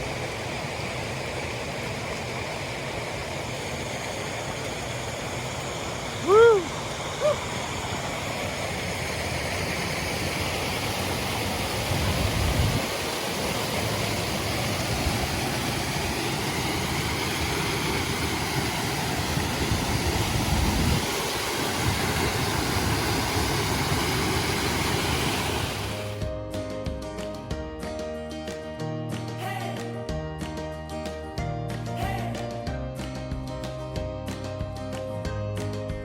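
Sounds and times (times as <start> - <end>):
flooded creek rushing: 0.0 - 26.2.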